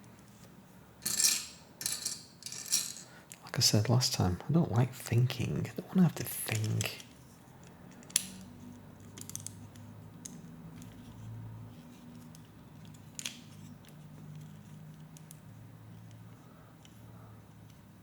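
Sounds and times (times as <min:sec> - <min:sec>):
plastic pieces clicking and rattling: 0:01.0 - 0:03.4, 0:06.5 - 0:11.0, 0:12.1 - 0:14.5.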